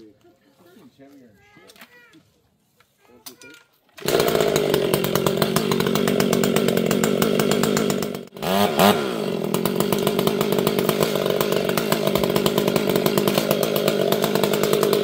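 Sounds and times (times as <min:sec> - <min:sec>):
chainsaw running: 0:03.4 - 0:15.0.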